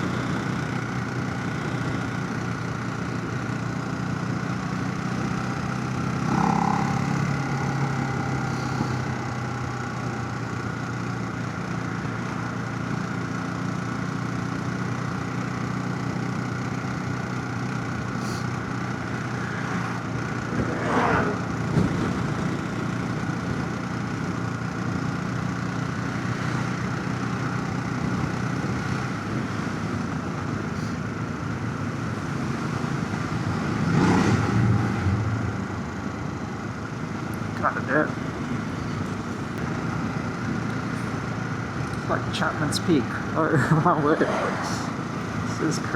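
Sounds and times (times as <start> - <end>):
motorcycle engine cruising: 0.0 - 45.9
road noise: 0.0 - 45.9.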